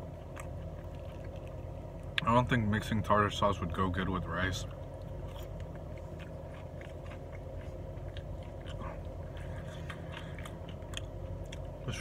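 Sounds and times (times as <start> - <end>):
steady low hum: 0.0 - 12.0
wet chewing mouth clicks: 5.0 - 11.8.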